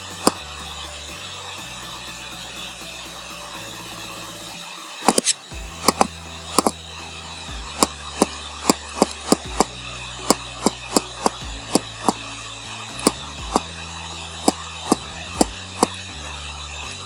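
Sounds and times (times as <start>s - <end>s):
steady low hum: 0.0s - 17.0s
sharp clicking: 5.0s - 6.8s.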